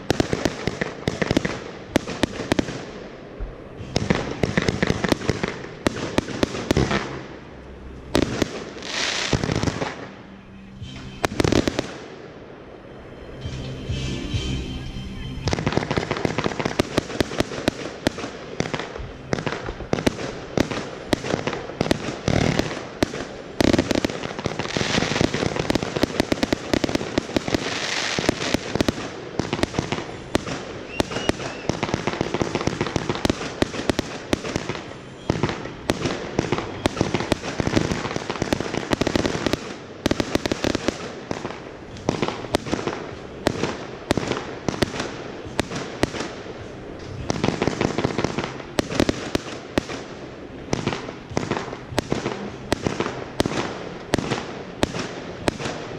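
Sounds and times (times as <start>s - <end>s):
fireworks banging and popping: 0.0s - 12.4s, 13.2s - 55.9s.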